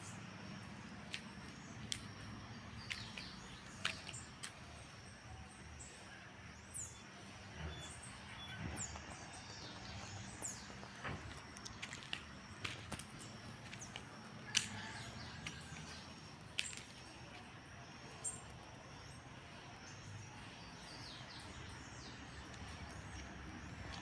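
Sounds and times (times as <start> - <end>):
birds chirping: 0.0 - 17.5.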